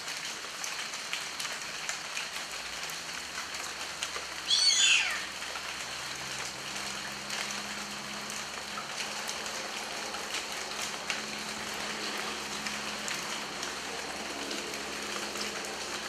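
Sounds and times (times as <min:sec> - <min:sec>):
steady rain falling: 0:00.0 - 0:16.0
downward-sweeping bird call: 0:04.5 - 0:05.3.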